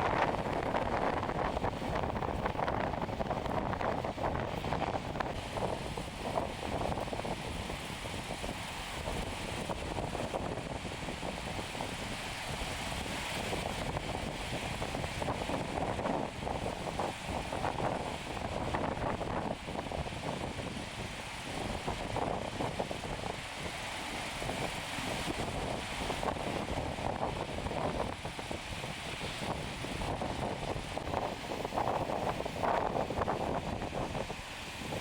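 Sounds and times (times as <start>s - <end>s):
gusty wind on microphone: 0.0s - 35.0s
ocean surf: 0.0s - 35.0s.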